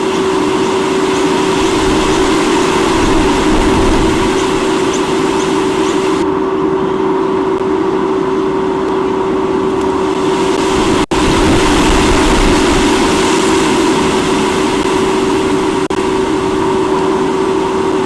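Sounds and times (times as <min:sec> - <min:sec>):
steady hum: 0:00.0 - 0:18.0
wind rushing over microphone: 0:00.2 - 0:06.2, 0:10.1 - 0:18.0.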